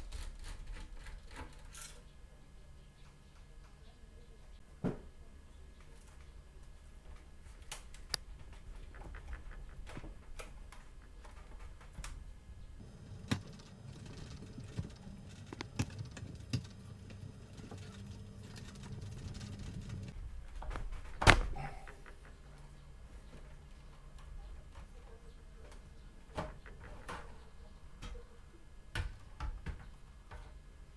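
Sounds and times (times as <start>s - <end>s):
low hum: 12.8s - 20.2s
plastic and metal parts clicking: 12.8s - 20.2s.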